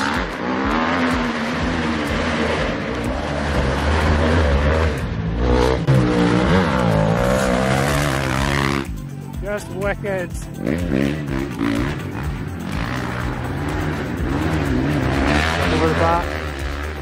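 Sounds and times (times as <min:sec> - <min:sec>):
dirt bike engine running hard: 0:00.0 - 0:17.0.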